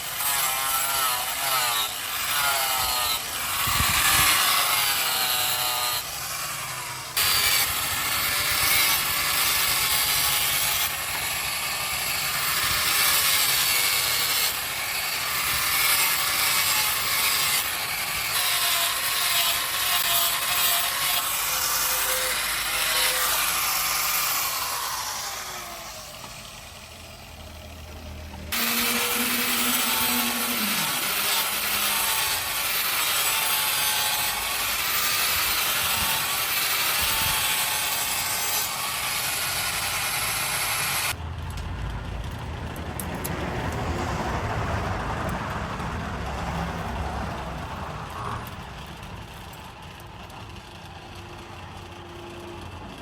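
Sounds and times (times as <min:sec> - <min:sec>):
power tool running against workpiece: 0:00.0 - 0:41.2.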